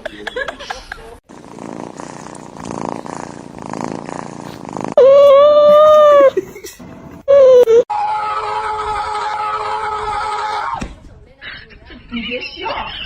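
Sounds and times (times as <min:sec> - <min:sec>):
cat purring: 0:01.2 - 0:05.0.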